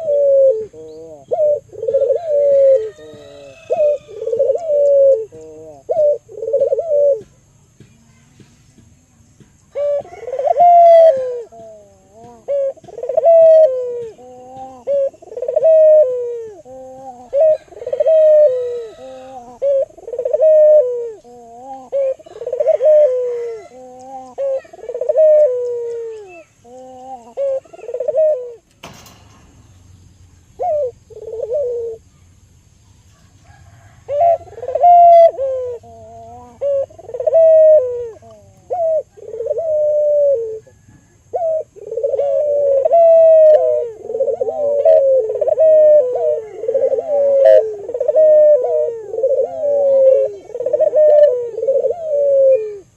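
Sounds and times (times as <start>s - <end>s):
dove cooing: 0.0s - 8.2s, 9.7s - 29.7s, 30.4s - 32.4s, 33.0s - 52.9s.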